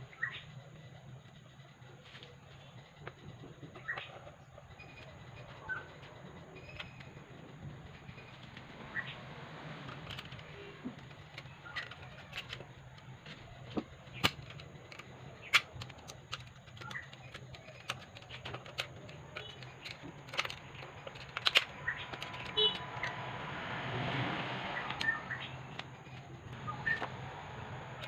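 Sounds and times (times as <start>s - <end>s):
clicks and knocks of hand tools: 9.8s - 23.2s.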